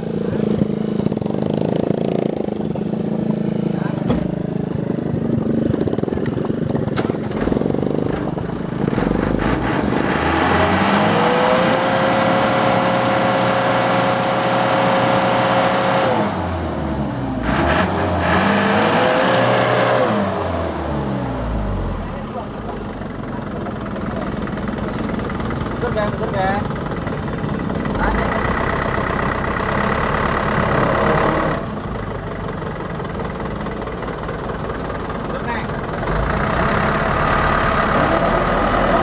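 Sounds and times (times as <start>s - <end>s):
truck engine revving: 0.0s - 39.0s.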